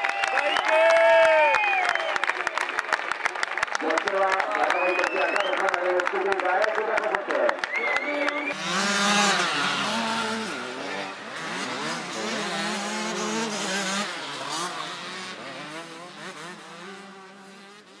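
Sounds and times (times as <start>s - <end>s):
motocross bikes revving: 7.6s - 18.0s.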